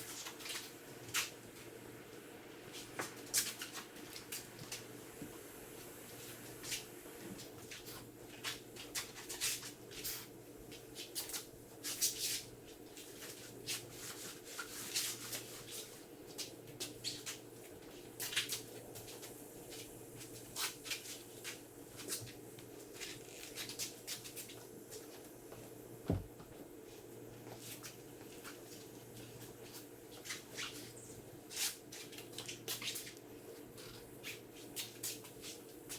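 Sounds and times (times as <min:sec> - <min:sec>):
steady low hum: 0:18.8 - 0:30.2
soft low thump: 0:26.0 - 0:26.6.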